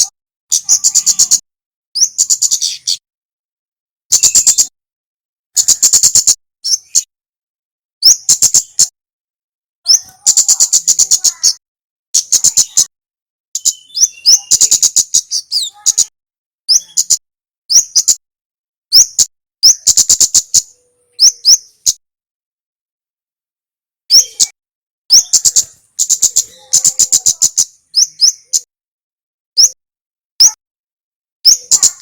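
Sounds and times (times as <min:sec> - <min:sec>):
bird song with rattling chatter: 0:00.0 - 0:03.1, 0:04.1 - 0:04.8, 0:05.5 - 0:07.1, 0:08.0 - 0:09.0, 0:09.8 - 0:13.0, 0:13.6 - 0:18.2, 0:18.9 - 0:22.0, 0:24.1 - 0:28.7, 0:29.6 - 0:29.8, 0:30.4 - 0:30.6, 0:31.4 - 0:32.0.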